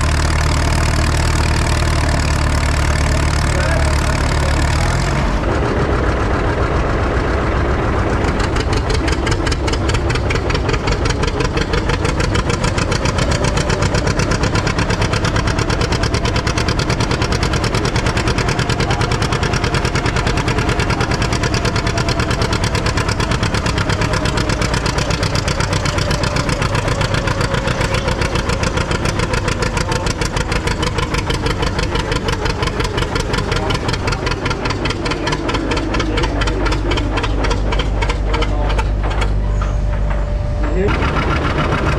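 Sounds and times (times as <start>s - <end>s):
tractor engine running hard: 0.0s - 41.9s.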